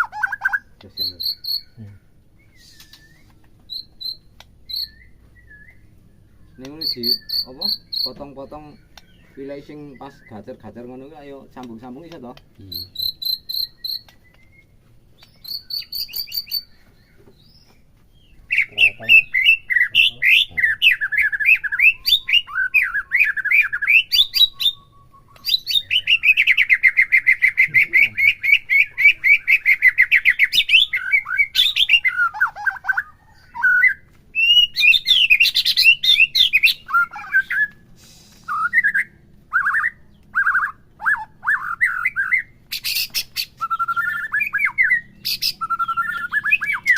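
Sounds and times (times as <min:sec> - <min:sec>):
songbird whistling song: 0:00.0 - 0:46.9.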